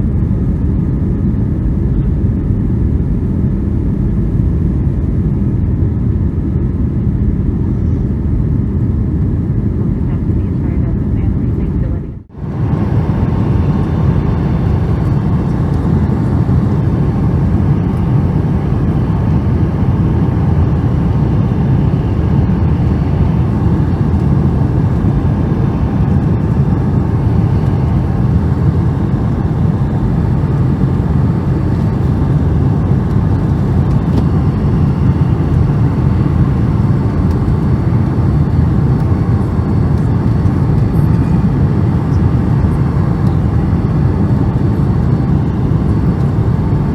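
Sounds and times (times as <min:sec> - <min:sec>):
airliner cabin roar: 0:00.0 - 0:46.9.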